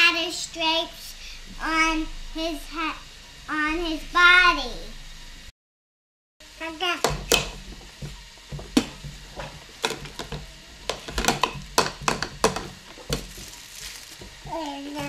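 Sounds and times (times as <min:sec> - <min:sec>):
scratchy rustle: 0:13.3 - 0:15.0.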